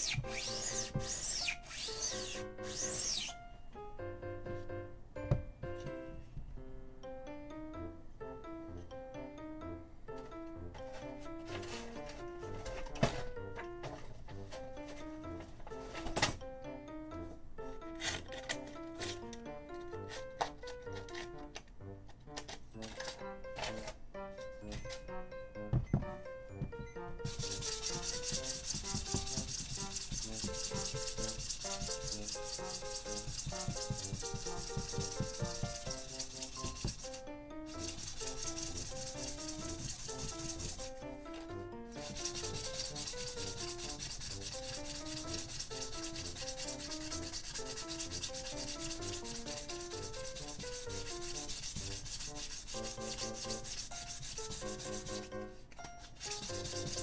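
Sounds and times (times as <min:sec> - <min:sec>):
hand sanding strokes: 0:00.0 - 0:03.3, 0:27.2 - 0:41.0, 0:41.9 - 0:55.4, 0:56.1 - 0:57.0.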